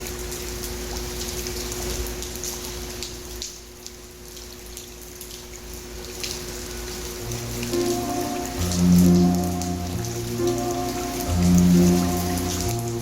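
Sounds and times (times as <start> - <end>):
rain drops ticking and splashing: 0.0 - 13.0.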